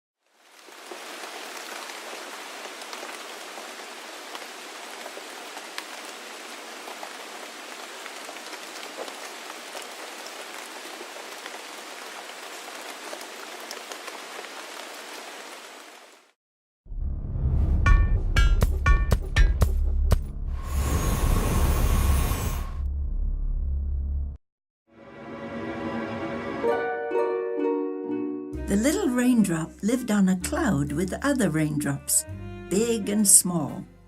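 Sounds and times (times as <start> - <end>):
steady rain falling: 0.2 - 16.4.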